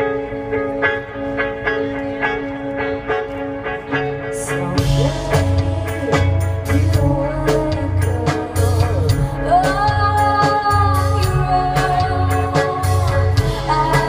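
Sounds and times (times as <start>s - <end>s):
guitar: 0.0s - 14.0s
person singing: 4.3s - 14.0s
pulsing bass: 4.6s - 14.0s
drums beating: 4.8s - 14.0s.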